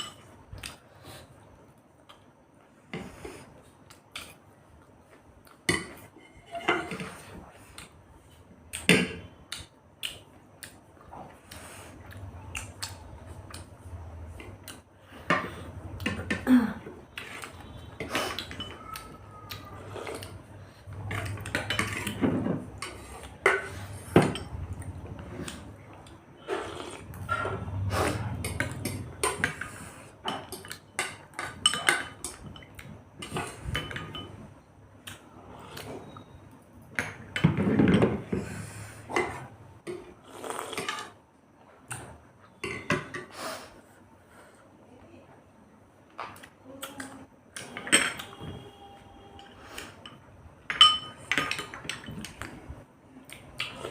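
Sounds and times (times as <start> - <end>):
cutlery scraping plates: 5.7 - 7.4, 20.9 - 24.6, 40.7 - 41.2.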